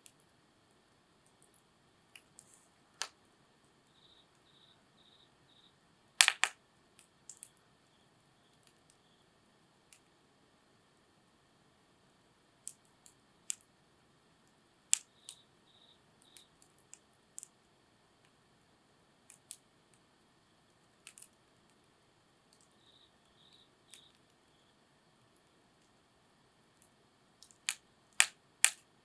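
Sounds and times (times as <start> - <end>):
faint high chirps: 3.8 - 5.8, 7.4 - 9.4, 14.6 - 16.6, 22.6 - 25.6
wood fire crackling: 6.2 - 7.5, 26.8 - 28.9.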